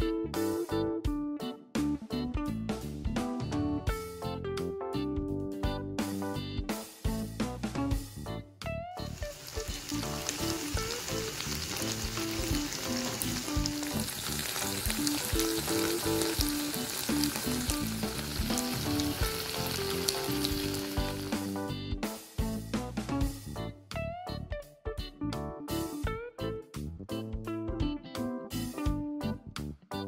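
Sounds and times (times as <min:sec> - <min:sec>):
tofu frying in bubbling sauce: 0:09.1 - 0:21.6.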